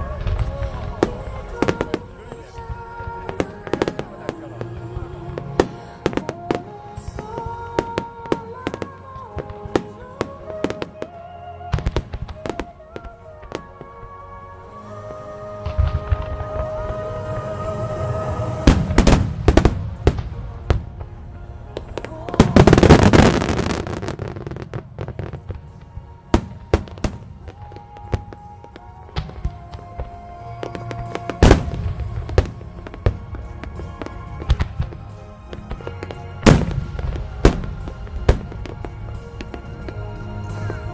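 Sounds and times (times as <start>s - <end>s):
fireworks bursting with bangs: 0.0s - 14.0s, 15.6s - 40.9s
slow sustained melody music: 0.0s - 40.9s
deep firework booms: 18.6s - 21.2s, 29.2s - 40.8s.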